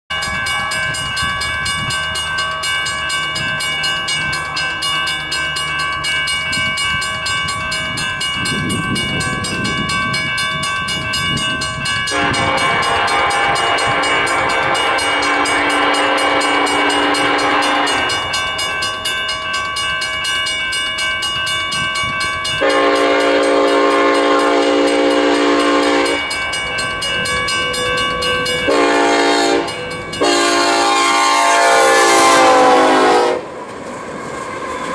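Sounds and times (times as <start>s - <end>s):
freight train rumble: 0.1s - 34.9s
locomotive air horn blasts: 12.1s - 18.3s, 22.6s - 26.2s, 28.5s - 33.5s.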